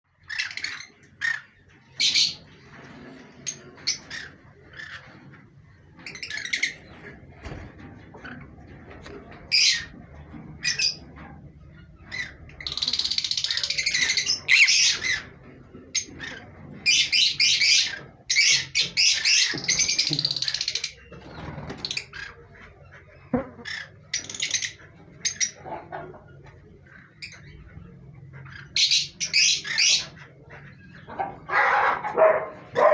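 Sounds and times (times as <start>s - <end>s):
parrots squawking: 0.2s - 2.4s, 6.0s - 7.0s, 9.5s - 9.9s, 10.6s - 11.0s, 11.9s - 15.3s, 15.9s - 22.6s, 28.2s - 32.9s.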